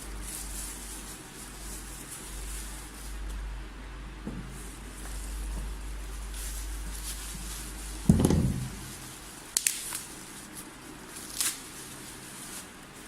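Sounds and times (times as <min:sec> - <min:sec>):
packaging rustle: 0:04.7 - 0:13.0
box thump: 0:08.1 - 0:08.9.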